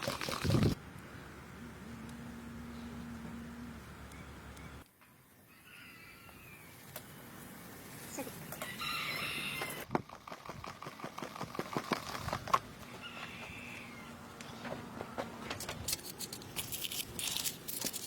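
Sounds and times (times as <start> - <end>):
rooster crowing: 5.5 - 6.8, 8.6 - 9.9, 12.9 - 14.2.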